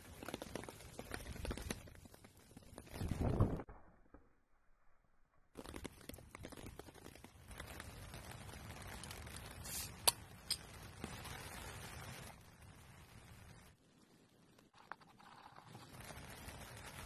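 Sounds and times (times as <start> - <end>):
outdoor hiss: 7.3 - 17.0.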